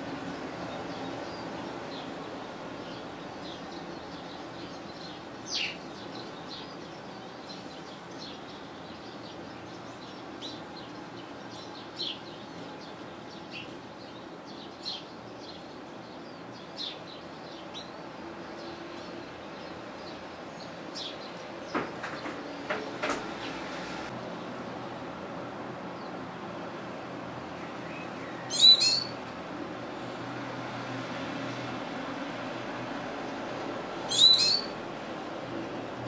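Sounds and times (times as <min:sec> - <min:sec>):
songbirds chirping: 0:00.1 - 0:36.0
sharp bird call: 0:34.1 - 0:34.7.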